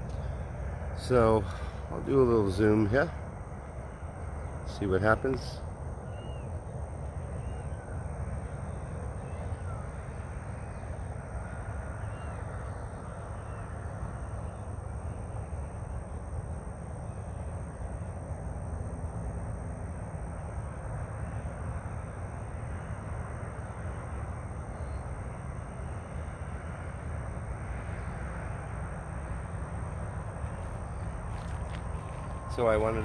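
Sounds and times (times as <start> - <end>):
steady low rumble: 0.0 - 33.0
faint short bird calls: 6.0 - 6.5.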